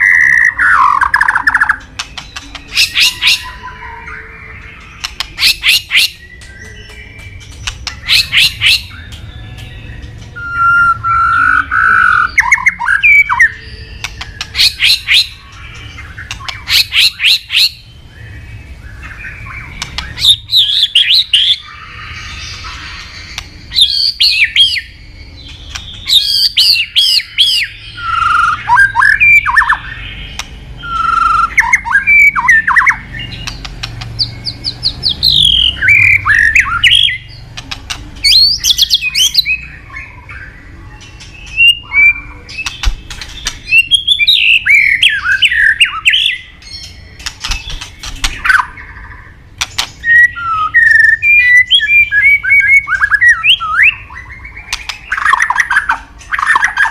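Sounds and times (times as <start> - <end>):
bird singing varied whistles: 30.8 - 33.0, 50.0 - 56.9.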